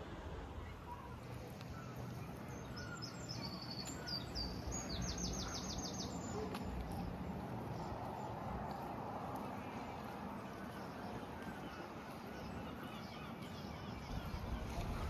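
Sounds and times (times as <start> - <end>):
outdoor background noise: 0.0 - 15.0
songbird singing high chirps: 0.9 - 8.9.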